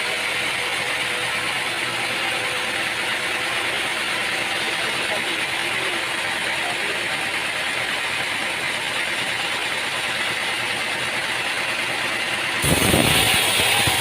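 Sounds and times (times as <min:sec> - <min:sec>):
deep machinery rumble: 0:00.0 - 0:14.0
machinery rattling hiss: 0:12.6 - 0:14.0.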